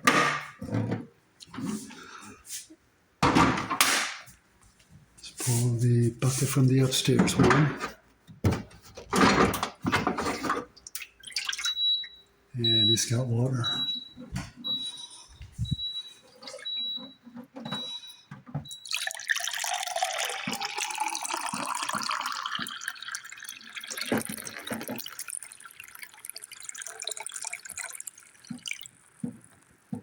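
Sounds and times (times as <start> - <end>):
water pouring and splashing: 10.8 - 11.8, 18.8 - 29.7.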